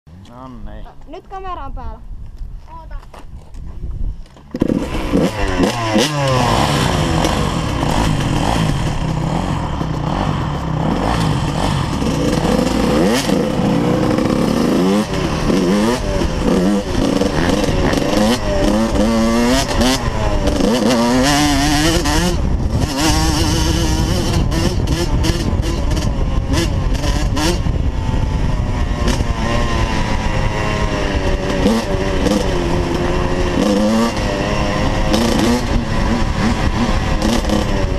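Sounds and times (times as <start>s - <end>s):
dirt bike engine revving: 4.5s - 37.9s.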